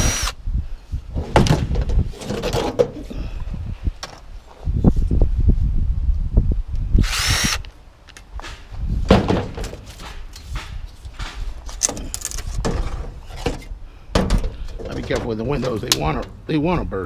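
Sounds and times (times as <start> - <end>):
power tool whirring: 0.0 - 0.4, 7.0 - 7.7
wind rumbling on microphone: 0.0 - 17.0
metal frames knocking and clattering: 9.1 - 16.4.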